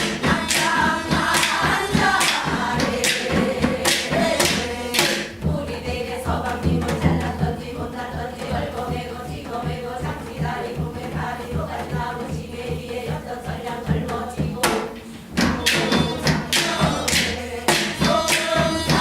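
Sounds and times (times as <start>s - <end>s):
person singing folk song: 0.0s - 19.0s
sharp drum strokes: 0.0s - 19.0s.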